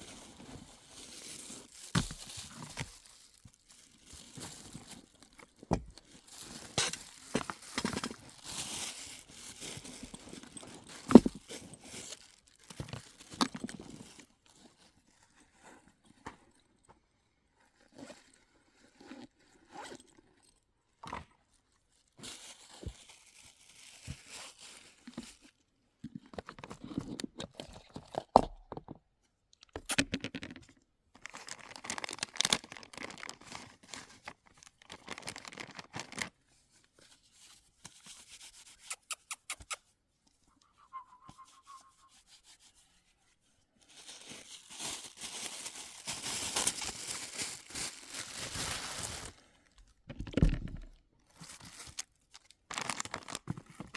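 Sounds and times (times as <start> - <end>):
packaging rustling and crinkling: 0.0 - 14.6, 22.2 - 25.6, 31.2 - 36.8, 43.8 - 49.7, 50.4 - 53.9.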